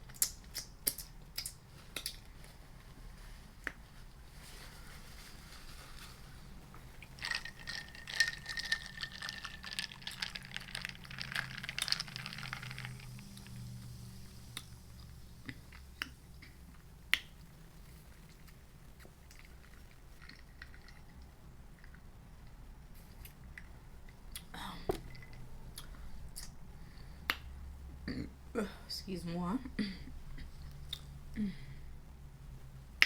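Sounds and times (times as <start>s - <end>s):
chewing food: 6.8s - 13.9s, 14.5s - 26.6s.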